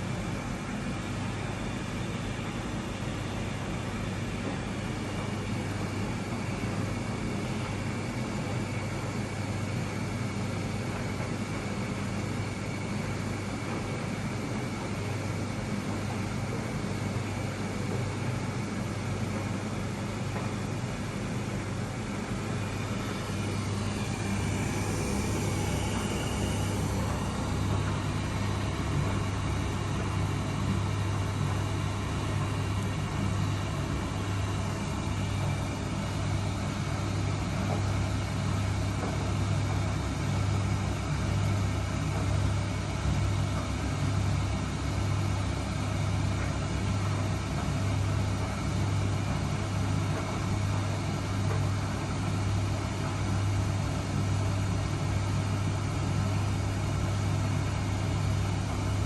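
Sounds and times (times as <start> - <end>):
washing machine running: 0.0 - 59.0.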